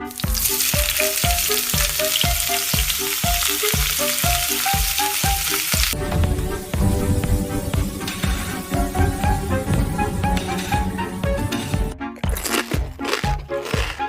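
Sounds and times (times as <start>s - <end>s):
music with a steady beat: 0.0s - 14.0s
broccoli sizzling in a frying pan: 0.1s - 6.0s.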